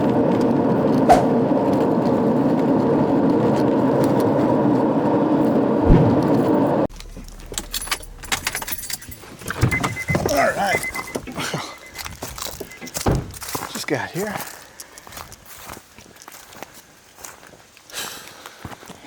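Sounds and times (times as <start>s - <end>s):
car road and engine noise: 0.0s - 14.2s.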